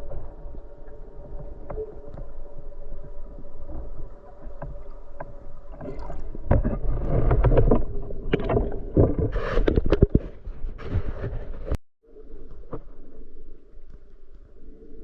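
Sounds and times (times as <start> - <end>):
faint steady hum: 0.0 - 7.2
water rushing and sloshing: 0.0 - 9.8.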